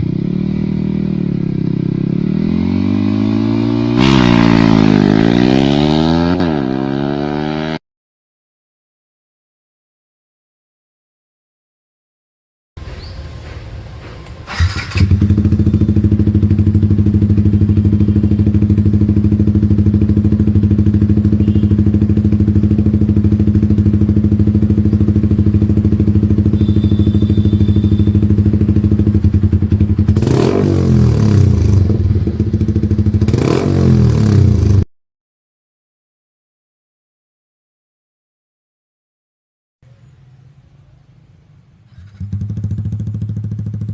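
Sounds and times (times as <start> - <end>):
motorcycle engine idling and revving: 0.0 - 7.8, 12.8 - 34.9, 41.9 - 43.9.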